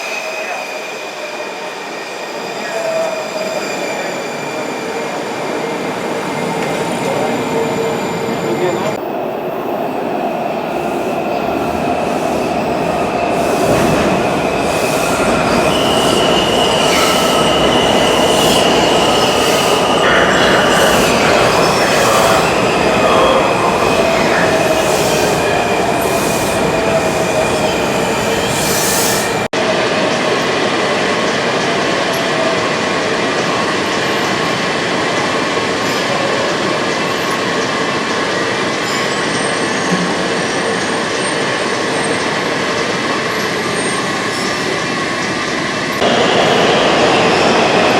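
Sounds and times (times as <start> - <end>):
train wheel squeal: 0.0 - 9.0, 10.8 - 30.4, 38.4 - 45.9
train rumble: 3.5 - 29.5.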